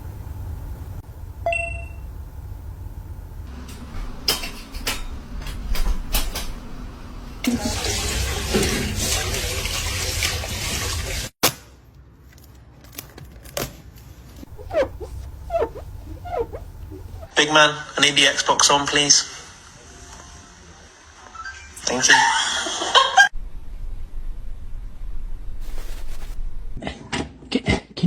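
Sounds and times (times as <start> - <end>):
toilet flushing: 0.0 - 11.4.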